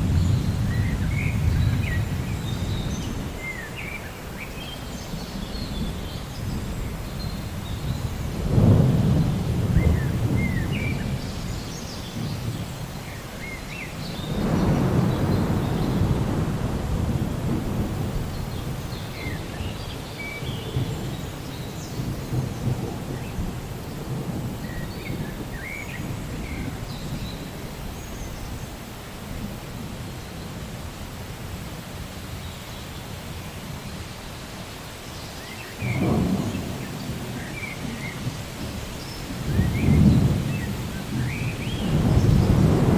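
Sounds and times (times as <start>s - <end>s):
rolling thunder: 0.0s - 3.7s, 5.1s - 13.0s, 14.0s - 30.8s, 35.8s - 42.9s
steady rain: 0.0s - 42.9s.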